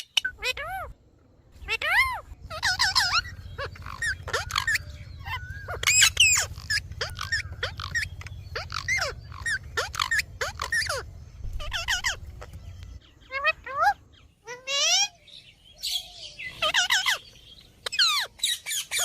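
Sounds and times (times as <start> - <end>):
birds chirping and squawking: 0.0 - 19.0
steady low hum: 0.3 - 14.5.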